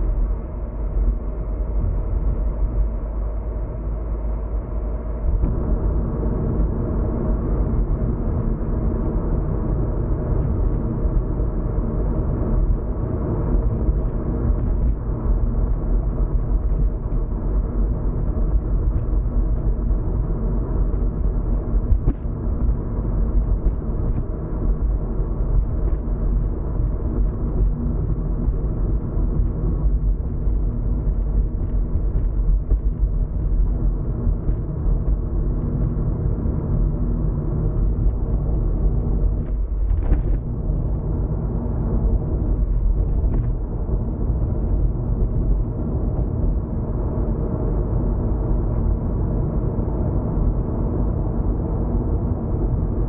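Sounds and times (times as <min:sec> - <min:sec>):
car engine and road rumble: 0:00.0 - 0:53.0.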